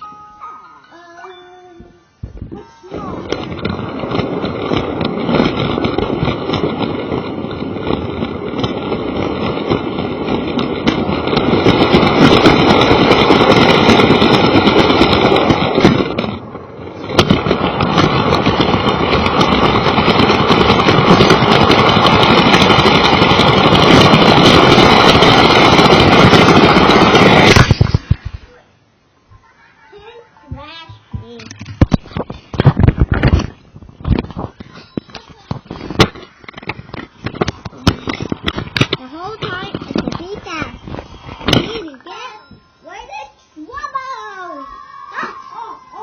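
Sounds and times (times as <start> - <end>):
toy train motor and wheels: 2.6 - 28.1, 34.2 - 44.6.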